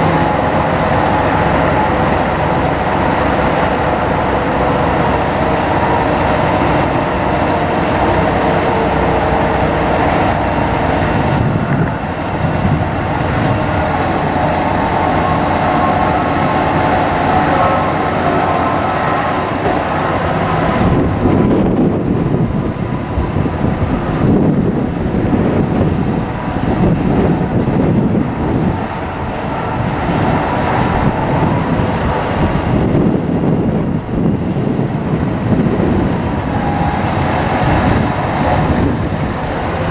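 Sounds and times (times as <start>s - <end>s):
bucket truck hydraulic boom running: 0.0s - 22.0s, 35.8s - 39.9s.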